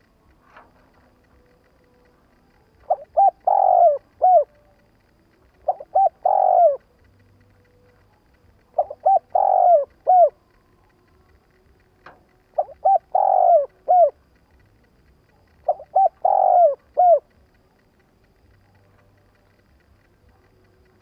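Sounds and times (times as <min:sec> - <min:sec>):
dove cooing: 0:00.0 - 0:07.7, 0:08.6 - 0:11.4, 0:12.1 - 0:14.6, 0:15.2 - 0:17.6.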